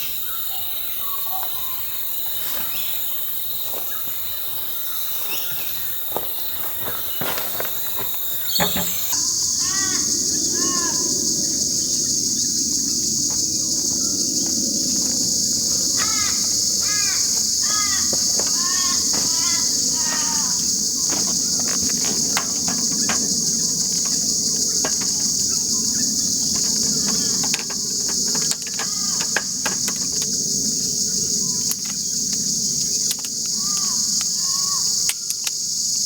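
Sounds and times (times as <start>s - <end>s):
bird calling: 0.0s - 12.5s, 13.9s - 30.9s
high-pitched insect chorus: 0.0s - 36.0s
clicks and knocks: 21.1s - 25.5s, 26.5s - 30.3s.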